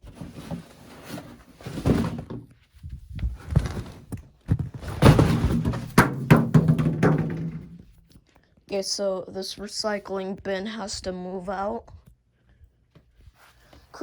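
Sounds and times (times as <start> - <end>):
objects knocking and thunking: 0.0 - 8.0.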